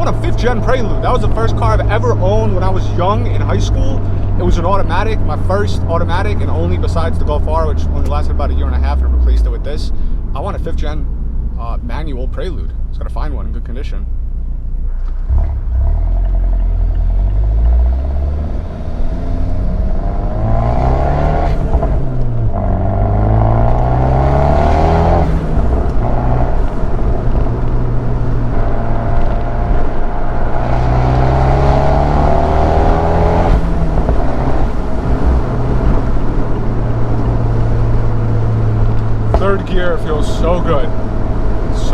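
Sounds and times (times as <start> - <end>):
car engine accelerating hard: 0.0 - 12.2, 14.8 - 41.9.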